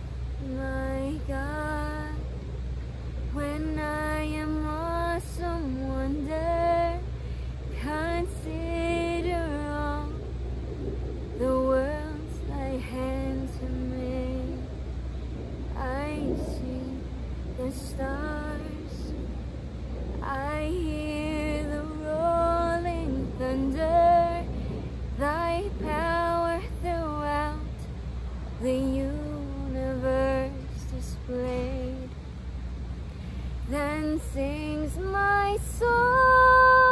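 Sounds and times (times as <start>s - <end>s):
woman singing a cappella: 0.0s - 2.3s, 3.3s - 10.4s, 11.4s - 14.7s, 15.7s - 19.3s, 20.2s - 28.0s, 28.6s - 32.4s, 33.6s - 36.9s
woman breathing: 7.1s - 7.7s, 33.0s - 33.6s.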